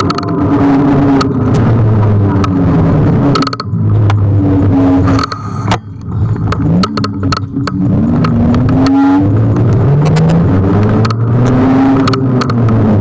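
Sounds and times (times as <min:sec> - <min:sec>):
scooter rattling over bumps: 0:01.0 - 0:04.3, 0:04.9 - 0:13.0
electric scooter motor whine: 0:03.8 - 0:06.6.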